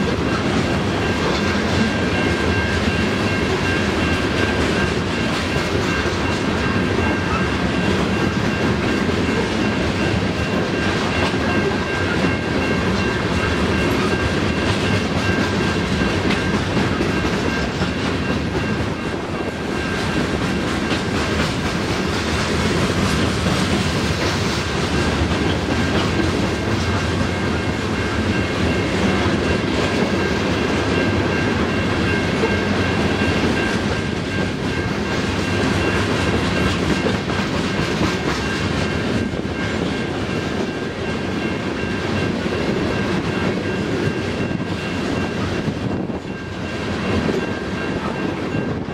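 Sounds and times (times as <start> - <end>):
train wheels rolling on rails: 0.0 - 48.9.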